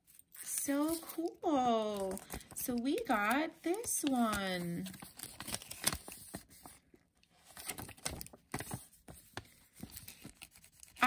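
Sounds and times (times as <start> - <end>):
plastic packaging crinkling: 0.0 - 6.8, 7.4 - 8.8.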